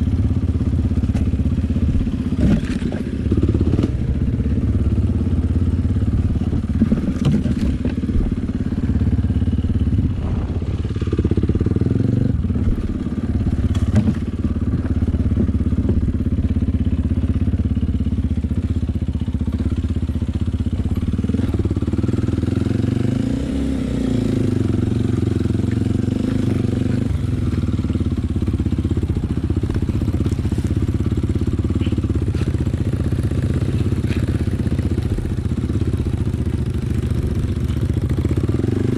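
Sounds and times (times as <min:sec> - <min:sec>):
dirt bike engine running: 0:00.0 - 0:38.9
bike clattering over rough ground: 0:00.9 - 0:03.9, 0:06.0 - 0:09.2, 0:12.6 - 0:17.6, 0:25.0 - 0:38.6.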